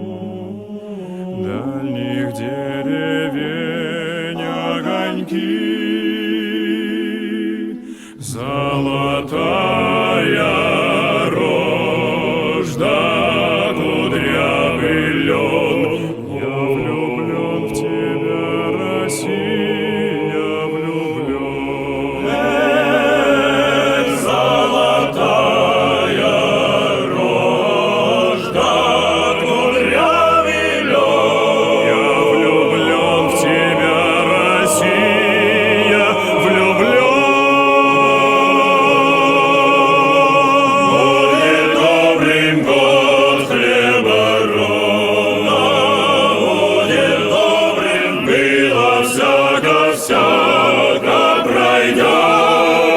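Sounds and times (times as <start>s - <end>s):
choir singing: 0.0s - 52.9s.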